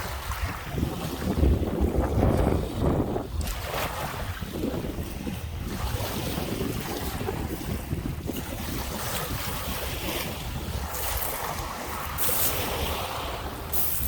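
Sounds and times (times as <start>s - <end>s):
waves washing onto shore: 0.0s - 14.0s
wind buffeting microphone: 0.0s - 14.0s.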